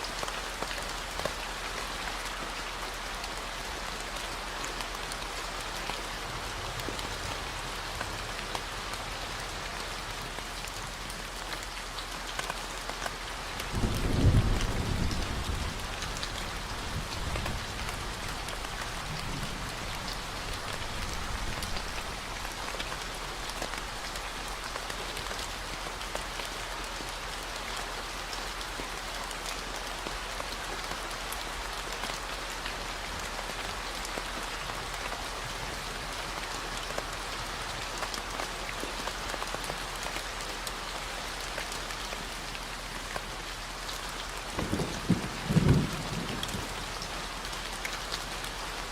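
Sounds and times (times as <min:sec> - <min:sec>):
steady rainfall: 0:00.0 - 0:48.9
thunder rumbling: 0:13.7 - 0:22.7, 0:44.6 - 0:46.8.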